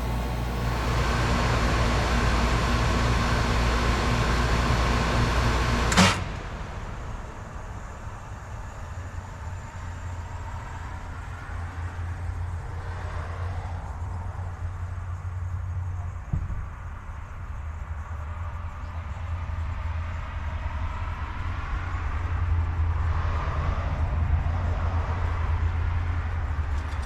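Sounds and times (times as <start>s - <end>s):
heat pump switch click: 0.0s - 6.6s
heat pump humming: 0.0s - 11.4s.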